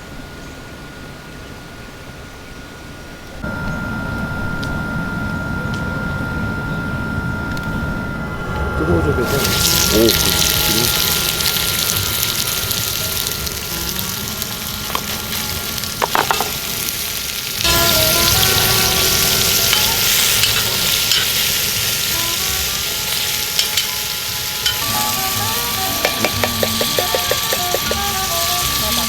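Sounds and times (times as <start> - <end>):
food sizzling in a pan: 9.2 - 29.0.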